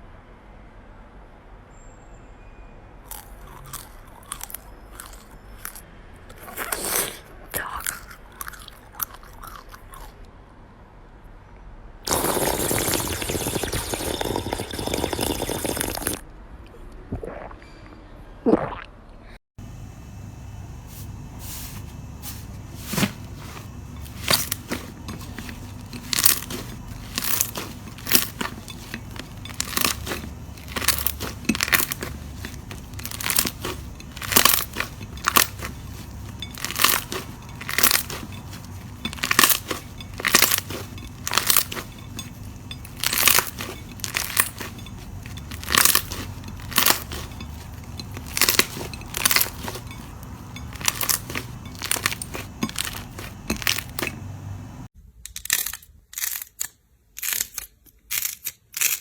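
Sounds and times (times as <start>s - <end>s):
slime crackling and crunching: 12.1s - 16.2s, 21.5s - 59.0s
steady low hum: 19.6s - 54.9s.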